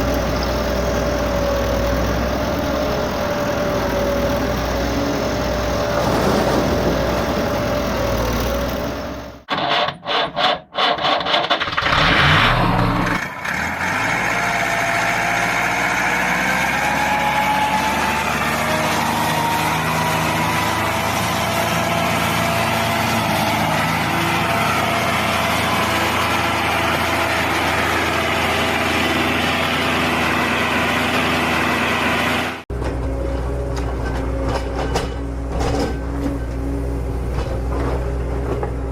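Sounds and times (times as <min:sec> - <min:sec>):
engine running: 0:00.0 - 0:09.5, 0:12.7 - 0:38.9.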